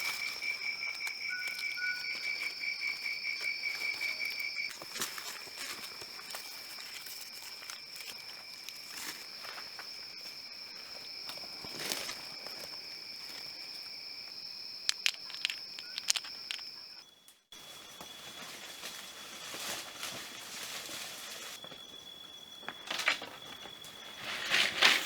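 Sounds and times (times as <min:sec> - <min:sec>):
clicks and knocks on rocks: 0:14.9 - 0:16.7.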